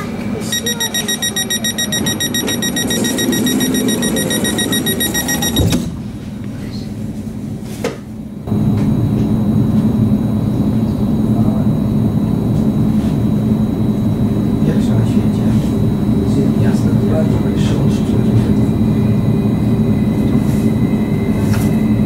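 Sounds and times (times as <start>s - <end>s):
train drive and ventilation hum: 0.0s - 22.0s
fast high beeping: 0.5s - 5.7s
train doors thumping shut: 5.3s - 6.0s.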